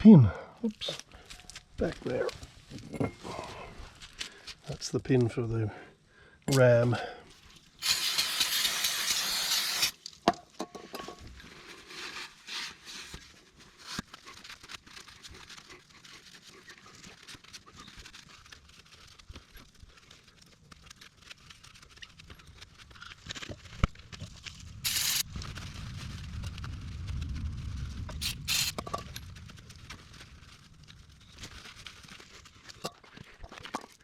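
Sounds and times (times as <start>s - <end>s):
spray hissing: 7.8s - 10.0s, 24.8s - 25.2s, 28.1s - 28.8s.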